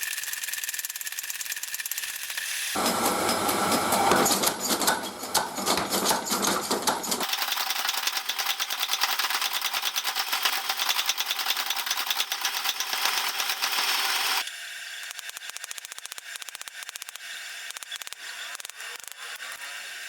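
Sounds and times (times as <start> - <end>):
power hammer strikes: 2.8 - 9.6.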